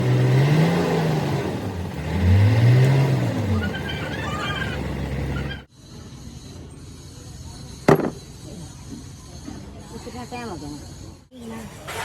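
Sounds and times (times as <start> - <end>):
generator engine revving: 0.0 - 5.7.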